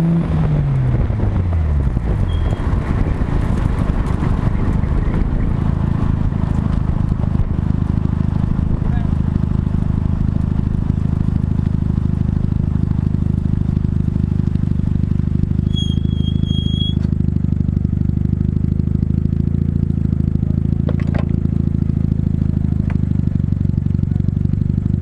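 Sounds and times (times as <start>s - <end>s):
rotary engine running hard: 0.0s - 25.0s
thin high squeal: 2.3s - 2.6s, 15.6s - 17.1s.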